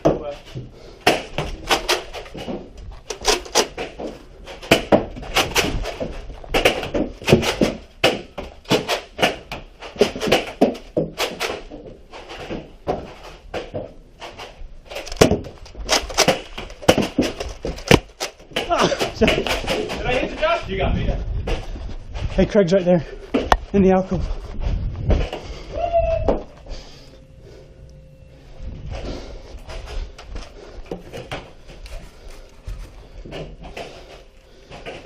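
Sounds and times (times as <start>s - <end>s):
foam balls hitting surfaces: 3.6s - 14.0s, 15.0s - 20.5s.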